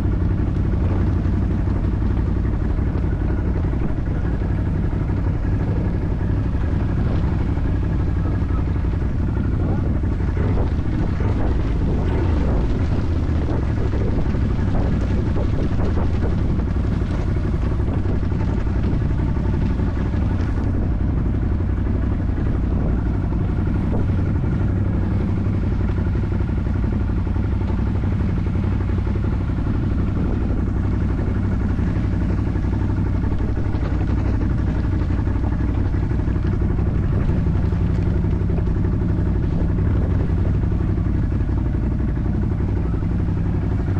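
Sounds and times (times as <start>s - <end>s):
atv engine running: 0.0s - 43.9s.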